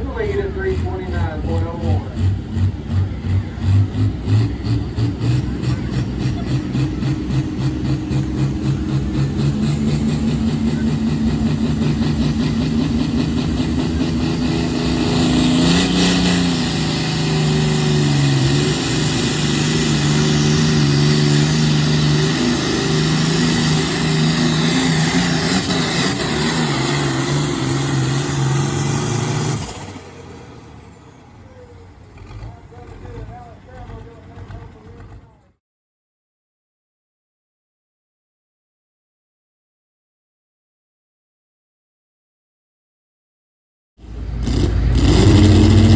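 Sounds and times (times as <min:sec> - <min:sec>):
pulling vehicle engine at full throttle: 0:00.0 - 0:35.6, 0:44.0 - 0:45.9.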